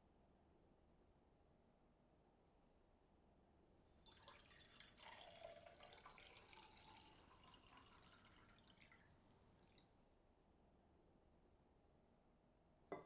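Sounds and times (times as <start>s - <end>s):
liquid pouring into a container: 4.0s - 9.9s.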